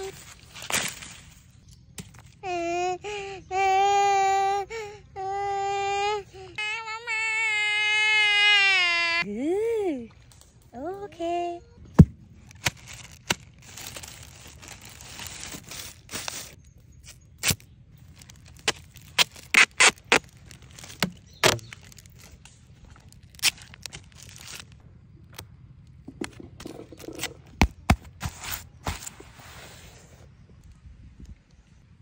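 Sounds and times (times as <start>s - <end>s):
plastic bag crinkling: 12.4s - 16.6s, 18.0s - 24.8s.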